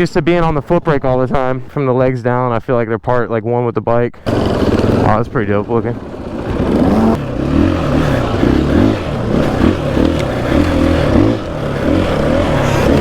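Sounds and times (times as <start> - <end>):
dirt bike engine revving: 4.2 - 13.0.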